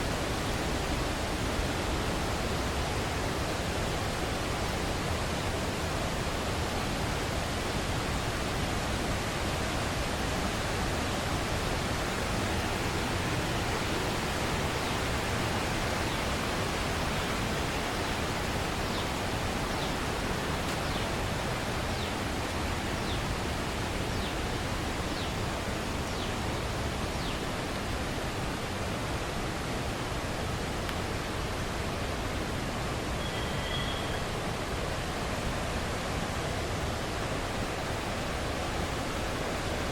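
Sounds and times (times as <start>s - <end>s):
waterfall roaring: 0.0s - 39.9s
faint high chirps: 33.2s - 34.3s.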